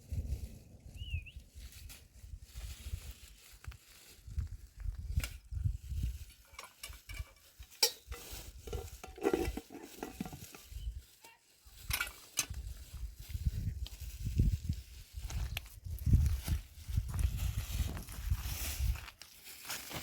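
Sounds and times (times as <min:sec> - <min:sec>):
utensil scraping cookware: 0:06.4 - 0:10.6.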